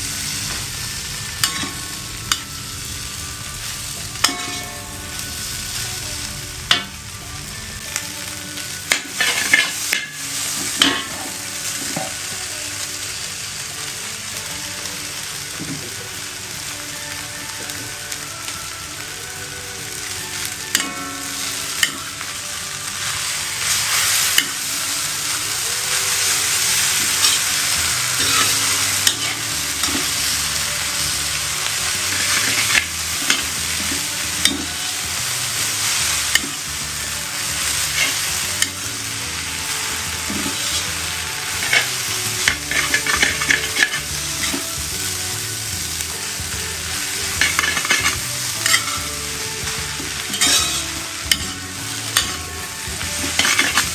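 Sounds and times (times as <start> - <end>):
noodles sizzling in a hot pan: 0.0 - 53.9
spatula scraping and clicking on pan: 47.4 - 49.0, 50.3 - 51.6, 53.2 - 53.9.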